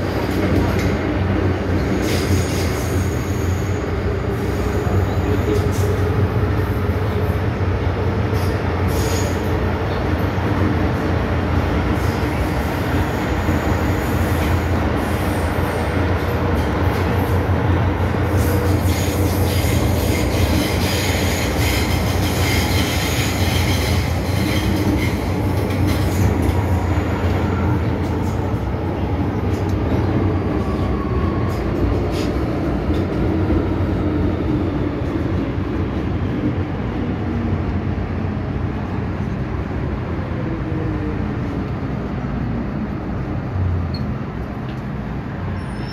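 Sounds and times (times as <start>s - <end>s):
train wheels rumbling on rail: 0.0s - 45.9s
train wheels squealing: 1.8s - 6.1s, 8.4s - 9.5s, 18.3s - 27.9s, 45.5s - 45.9s.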